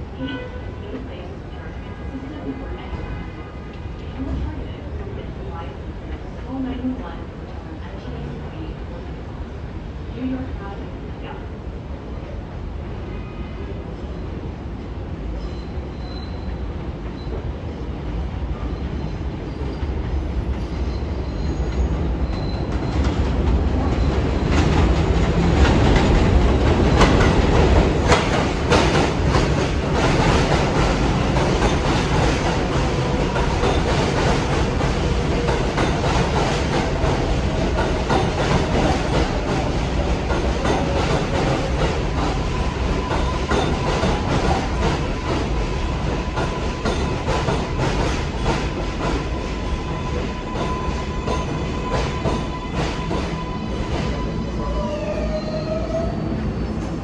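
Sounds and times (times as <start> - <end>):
subway train wheels clacking: 0.0 - 57.0
train wheels squealing: 15.4 - 17.4, 18.7 - 23.1, 40.3 - 57.0.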